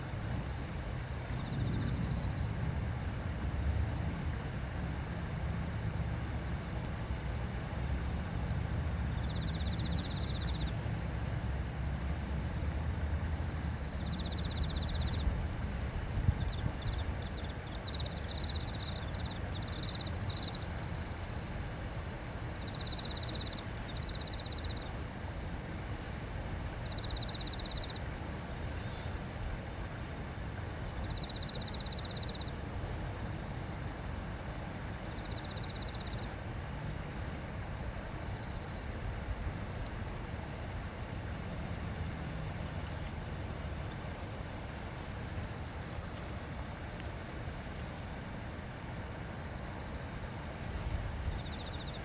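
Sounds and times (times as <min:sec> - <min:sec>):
river babbling: 0:00.0 - 0:52.0
small animal pulsed trill: 0:16.5 - 0:20.6, 0:22.6 - 0:24.9, 0:26.9 - 0:28.0, 0:31.1 - 0:32.5.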